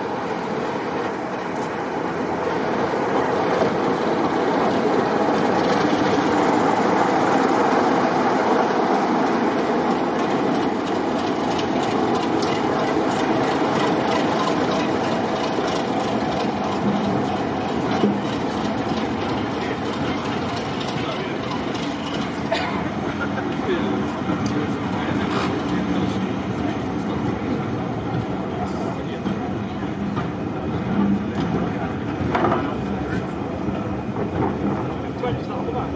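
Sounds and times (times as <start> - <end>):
train running noise: 0.0 - 35.9
wheel clicks over rail joints: 10.2 - 22.5.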